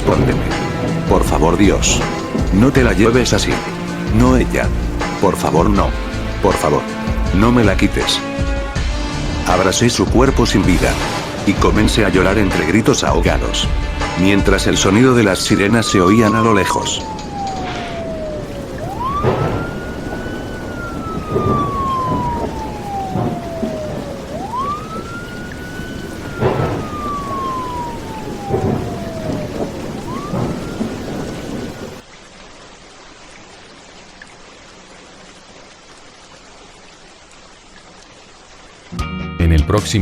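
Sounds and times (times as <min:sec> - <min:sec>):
distant siren wailing: 0:00.0 - 0:09.7, 0:11.1 - 0:32.1
thunder claps: 0:00.0 - 0:32.0
rain: 0:00.0 - 0:40.0.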